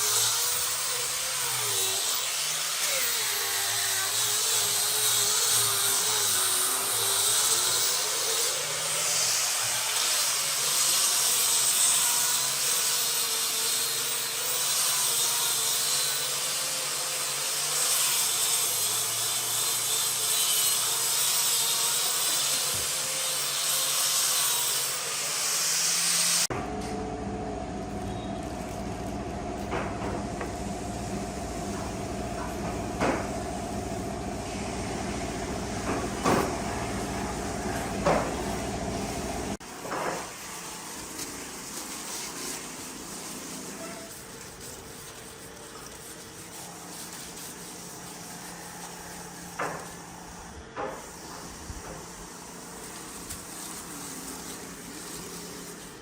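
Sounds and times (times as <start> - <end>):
power tool cutting wood: 0.0 - 26.5
steady mechanical hum: 0.0 - 56.0.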